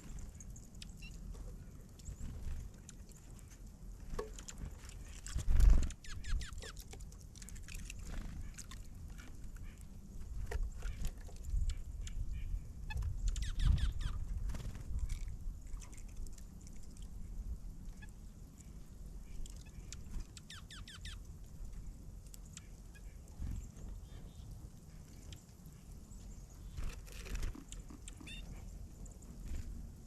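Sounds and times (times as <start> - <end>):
bird chirps: 0.0 - 1.2, 5.3 - 6.8, 10.8 - 14.2, 19.3 - 21.2, 22.4 - 28.7
birds feeding clicks and scratching: 0.0 - 30.0.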